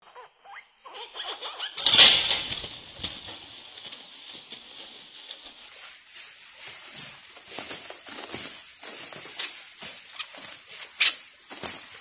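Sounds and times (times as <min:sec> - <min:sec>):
bird fluttering in a cage: 0:08.0 - 0:12.0.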